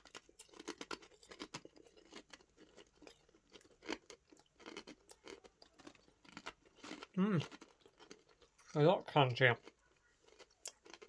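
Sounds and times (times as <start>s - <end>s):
person chewing crunchy crisps: 0.0s - 11.0s.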